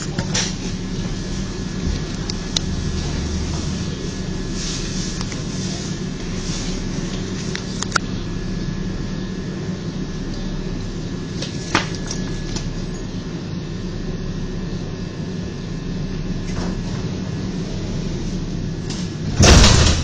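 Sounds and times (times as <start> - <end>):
tram rumbling and humming: 0.0 - 11.6, 12.3 - 20.0.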